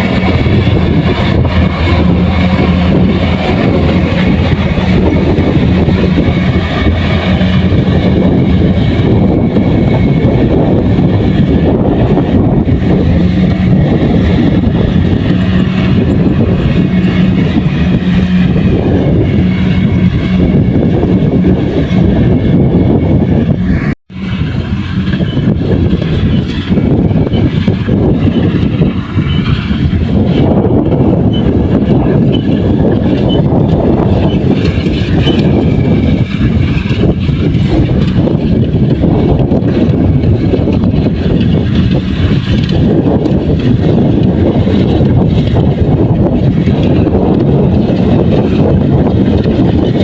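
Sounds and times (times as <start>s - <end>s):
diesel engine humming: 0.0s - 50.0s
threshing machinery clattering: 0.0s - 50.0s.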